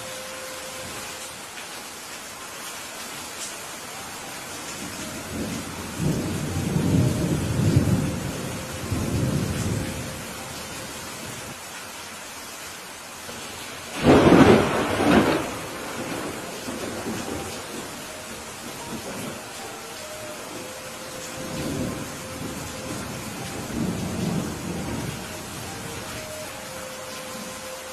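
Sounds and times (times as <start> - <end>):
steady rain: 0.0 - 27.9
thunder rumbling: 4.8 - 11.4, 13.9 - 26.5
sharp thunderclap: 14.0 - 17.2.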